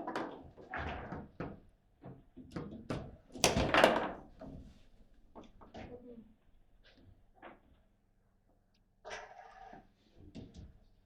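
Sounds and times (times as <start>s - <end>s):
table football knocks and clacks: 1.0s - 4.2s.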